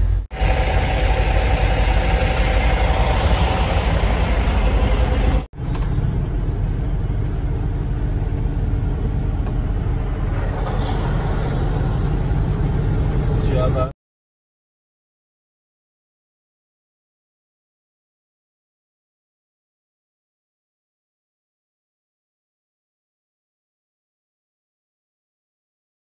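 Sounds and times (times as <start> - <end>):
vehicle engine low rumble: 0.0 - 13.9.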